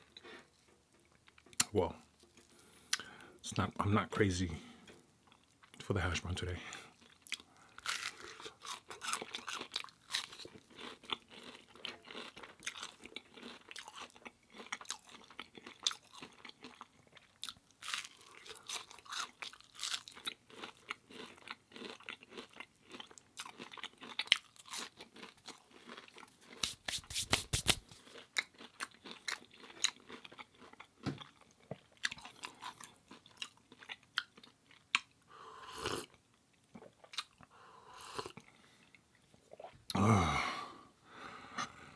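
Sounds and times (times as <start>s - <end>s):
crunchy chewing: 6.9s - 35.1s.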